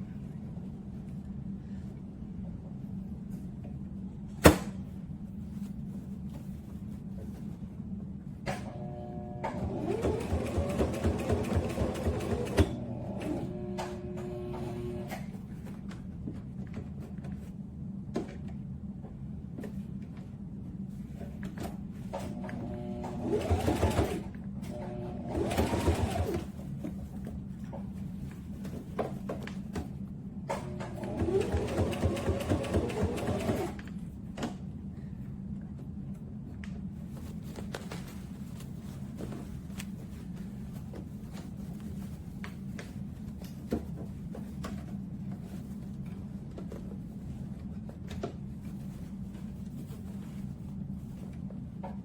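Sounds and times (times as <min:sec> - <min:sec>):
low steady hum: 0:00.0 - 0:10.0
sewing machine hum: 0:08.7 - 0:15.2, 0:22.3 - 0:26.6, 0:30.6 - 0:33.9.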